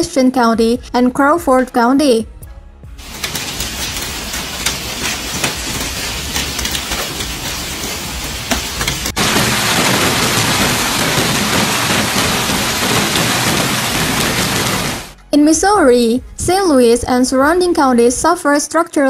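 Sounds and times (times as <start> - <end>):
dense downpour: 3.0 - 15.2
hailstones pelting down: 3.0 - 15.2.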